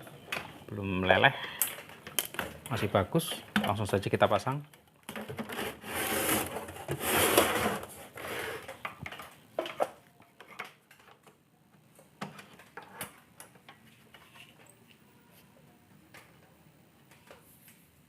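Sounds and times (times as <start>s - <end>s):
rubbing and scraping: 5.3s - 8.8s.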